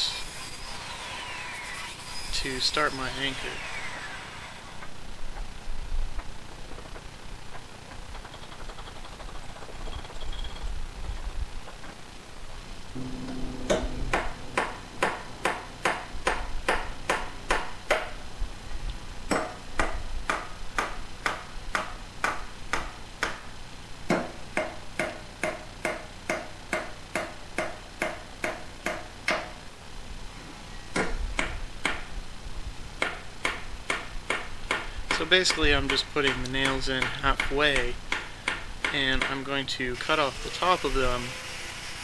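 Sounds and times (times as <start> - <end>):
hammer striking nails into wood: 13.7 - 18.2, 19.3 - 23.4, 24.1 - 29.6, 31.0 - 32.1, 33.0 - 39.4.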